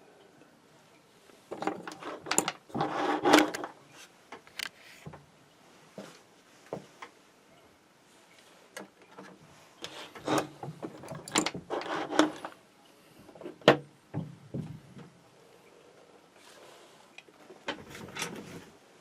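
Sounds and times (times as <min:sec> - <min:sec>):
tools clicking and knocking: 0:01.5 - 0:03.7, 0:10.8 - 0:12.6.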